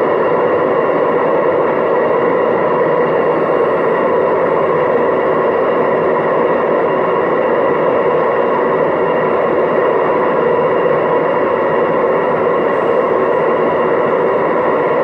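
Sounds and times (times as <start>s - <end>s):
washing machine spinning: 12.4s - 15.0s.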